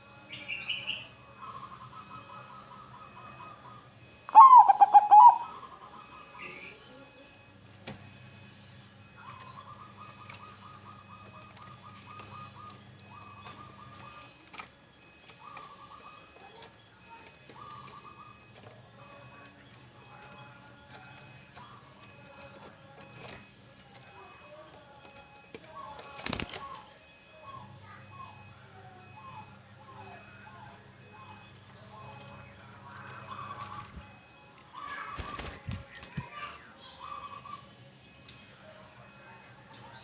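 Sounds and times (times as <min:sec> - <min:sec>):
dove cooing in trills: 0:00.7 - 0:06.9, 0:09.2 - 0:23.4, 0:32.4 - 0:37.7.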